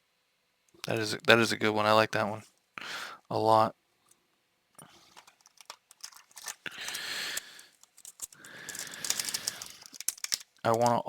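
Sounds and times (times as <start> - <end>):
foil wrapper crinkling: 4.9 - 11.0
trading cards clicking: 5.1 - 11.0.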